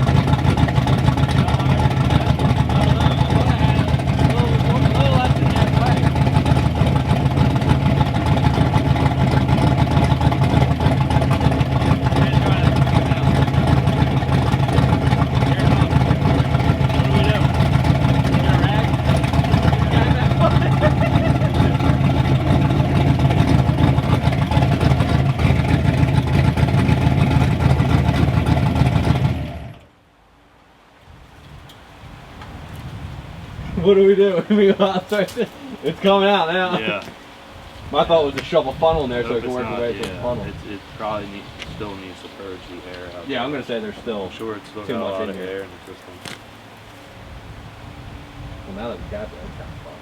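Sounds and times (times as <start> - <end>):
turbocharged engine idling: 0.0 - 29.9, 33.5 - 50.0.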